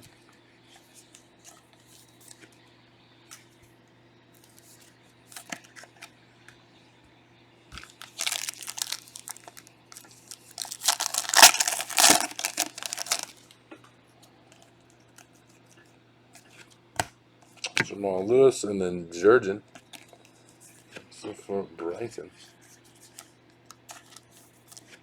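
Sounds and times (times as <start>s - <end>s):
plastic wrapper tearing and crinkling: 7.8s - 13.4s.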